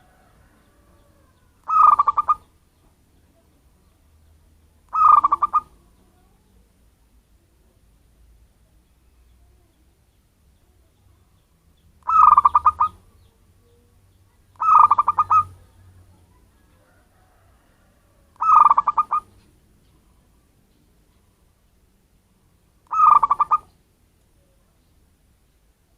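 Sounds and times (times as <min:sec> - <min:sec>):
dove cooing: 0:00.0 - 0:02.5, 0:04.9 - 0:05.8, 0:12.0 - 0:13.3, 0:14.6 - 0:15.8, 0:18.4 - 0:19.4, 0:22.9 - 0:23.7.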